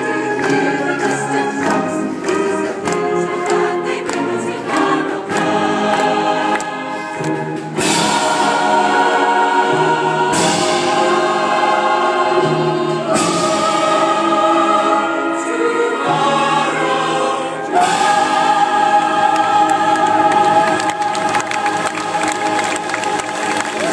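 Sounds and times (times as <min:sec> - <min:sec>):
choir singing held chords: 0:00.0 - 0:23.9.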